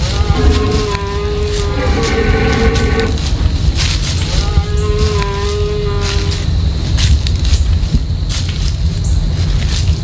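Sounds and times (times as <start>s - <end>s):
deer call: 0.0s - 3.3s
low rumble: 0.0s - 4.4s.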